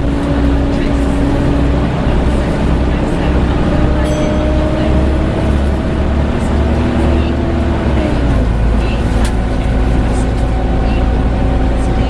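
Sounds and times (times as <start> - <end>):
bus engine rumbling: 0.0 - 12.0
engine cooling fan whining: 0.0 - 12.0.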